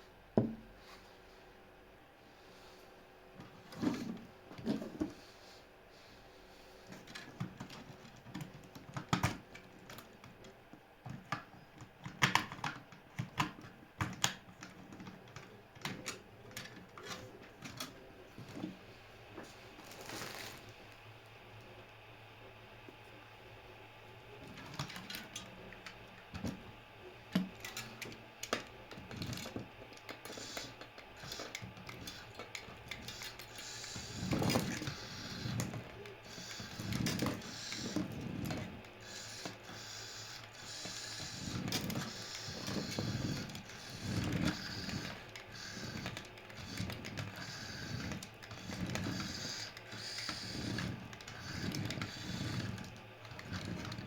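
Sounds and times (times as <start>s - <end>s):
toy car motor whirring: 27.6s - 54.0s.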